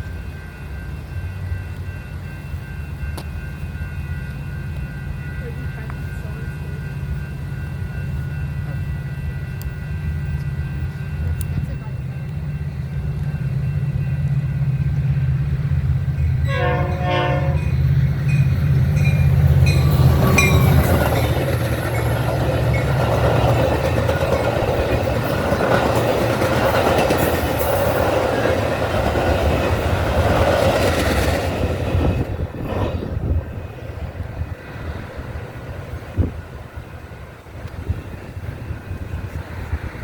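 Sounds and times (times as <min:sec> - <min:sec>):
diesel train engine drone: 0:00.0 - 0:40.0
train cars rushing and clattering: 0:00.0 - 0:40.0
train horn: 0:16.2 - 0:18.4.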